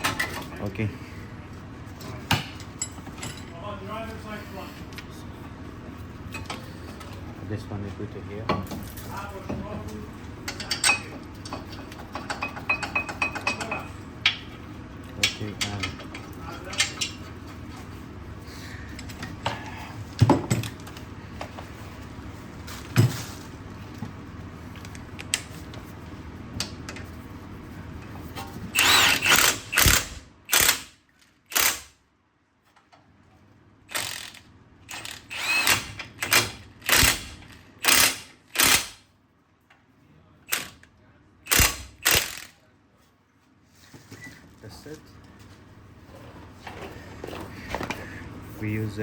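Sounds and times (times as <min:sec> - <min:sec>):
tools knocking: 0:10.5 - 0:14.5
power tool whirring: 0:28.8 - 0:31.9, 0:33.9 - 0:39.0, 0:41.5 - 0:42.5.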